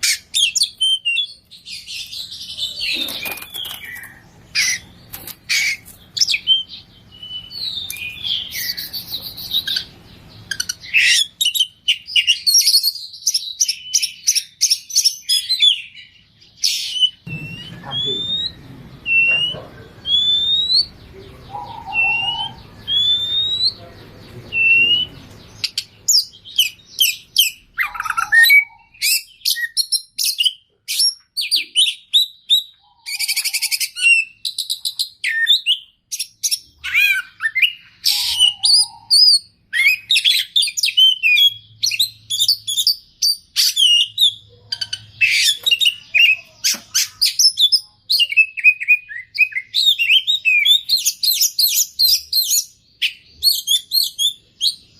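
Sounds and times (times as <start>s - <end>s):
bird singing whistles and trills: 0.0s - 54.9s.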